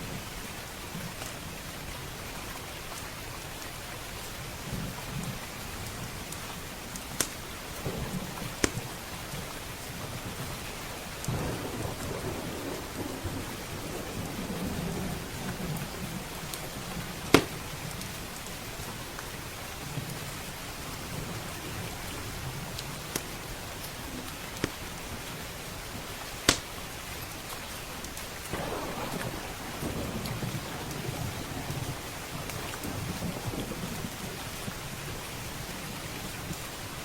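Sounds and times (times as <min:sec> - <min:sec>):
heavy rain on windows and roof: 0:00.0 - 0:37.0
wood fire crackling: 0:05.4 - 0:10.0, 0:16.4 - 0:19.2, 0:22.7 - 0:25.0, 0:26.1 - 0:34.8
rolling thunder: 0:07.8 - 0:09.1, 0:11.3 - 0:17.7, 0:28.5 - 0:35.2.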